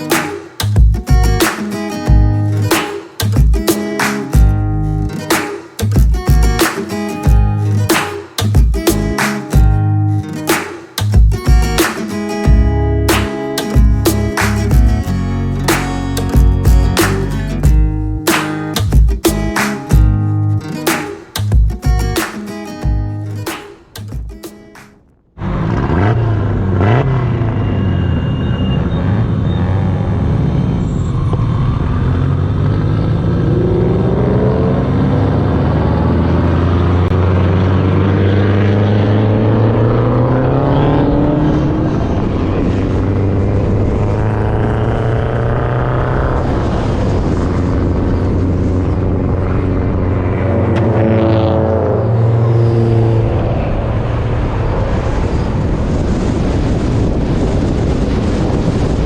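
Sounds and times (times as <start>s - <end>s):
car engine accelerating: 25.4s - 58.9s.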